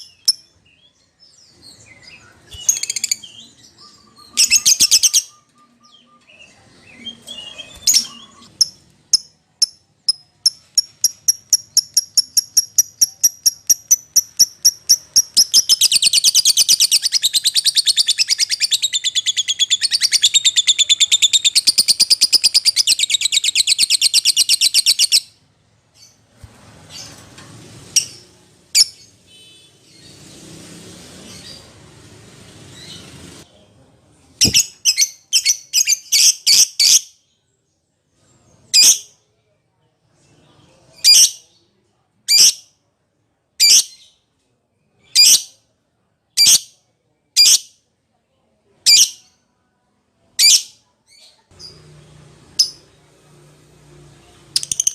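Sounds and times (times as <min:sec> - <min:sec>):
lovebird chirping and trilling: 0:00.0 - 0:00.9, 0:01.6 - 0:25.4, 0:28.8 - 0:29.1, 0:34.4 - 0:37.1, 0:52.6 - 0:52.8, 0:54.6 - 0:54.9
background noise: 0:00.0 - 0:54.9.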